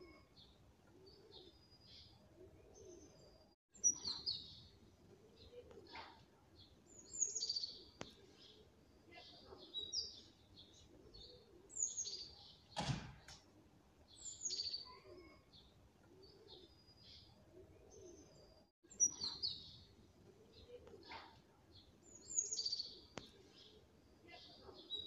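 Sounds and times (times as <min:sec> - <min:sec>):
small birds chirping: 0:00.0 - 0:25.0
thump: 0:12.8 - 0:13.4.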